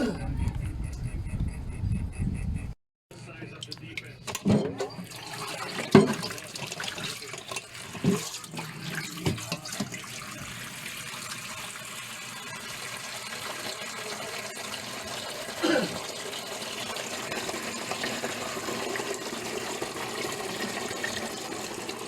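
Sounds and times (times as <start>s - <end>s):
water running: 3.6s - 22.0s.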